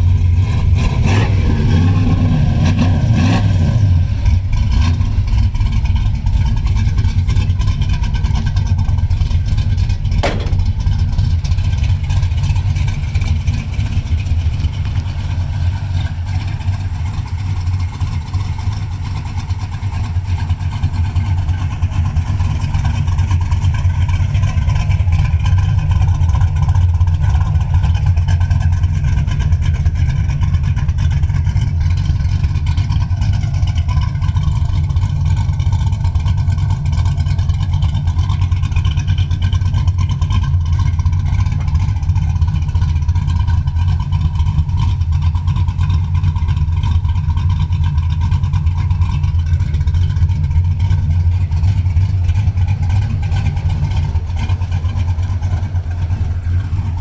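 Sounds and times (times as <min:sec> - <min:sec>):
car engine idling: 0:00.0 - 0:57.0
sharp click: 0:10.2 - 0:10.9.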